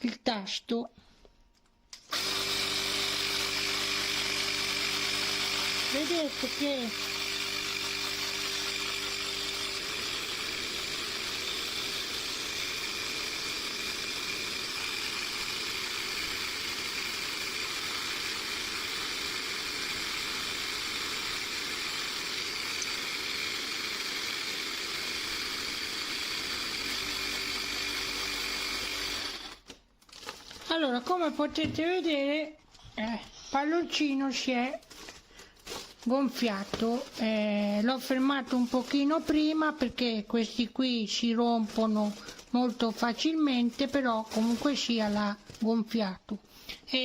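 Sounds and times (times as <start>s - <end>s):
electric air pump motor hum: 2.0s - 29.6s.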